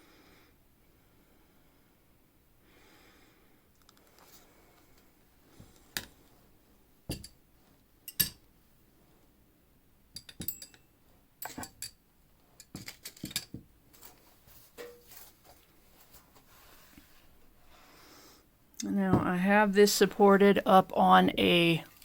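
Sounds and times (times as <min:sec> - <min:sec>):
small hard objects knocking: 0:12.6 - 0:14.1.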